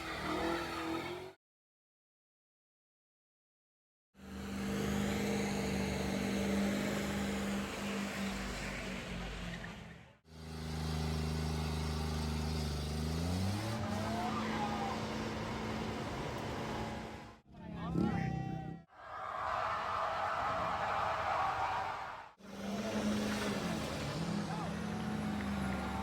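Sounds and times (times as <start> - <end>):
engine revving up: 4.3 - 18.9, 22.4 - 26.0.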